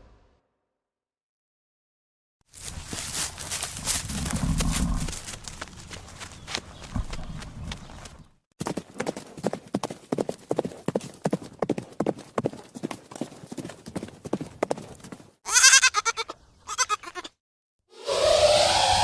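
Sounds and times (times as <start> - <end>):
hoof steps clattering: 2.6 - 15.3
sheep bleating: 15.5 - 17.3.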